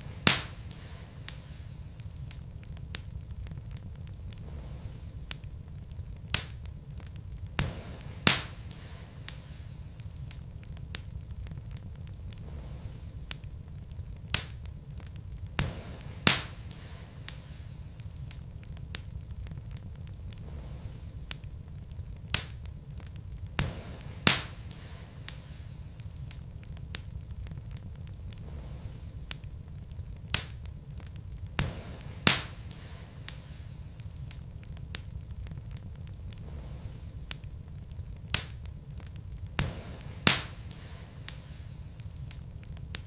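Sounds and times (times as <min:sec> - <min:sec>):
rumble of flame: 0:00.0 - 0:43.0
sharp pops from fire: 0:00.0 - 0:43.0
wood fire crackling: 0:00.0 - 0:43.0
loud wood pops: 0:00.2 - 0:01.6, 0:07.5 - 0:09.6, 0:15.5 - 0:17.6, 0:23.6 - 0:25.6, 0:31.5 - 0:34.4, 0:39.5 - 0:42.4.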